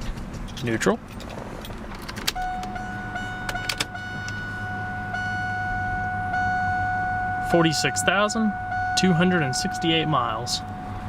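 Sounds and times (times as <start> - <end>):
car engine idling: 0.0 - 11.0
high electronic warning tone: 2.4 - 11.0.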